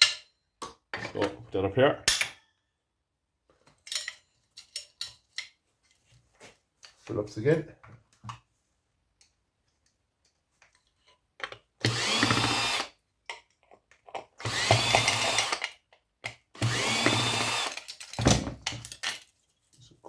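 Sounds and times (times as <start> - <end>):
cordless power driver spinning: 11.8 - 12.9, 14.4 - 15.6, 16.6 - 17.9.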